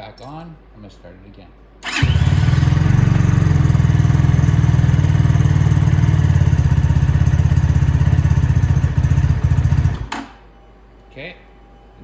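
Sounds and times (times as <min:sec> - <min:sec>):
motorcycle engine idling: 0:01.9 - 0:10.1.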